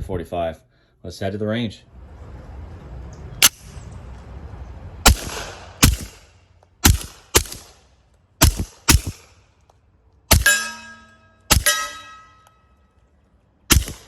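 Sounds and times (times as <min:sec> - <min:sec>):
suppressed pistol shots: 0:05.0 - 0:07.8, 0:08.4 - 0:09.4, 0:10.3 - 0:10.8, 0:11.5 - 0:12.0, 0:13.7 - 0:14.0.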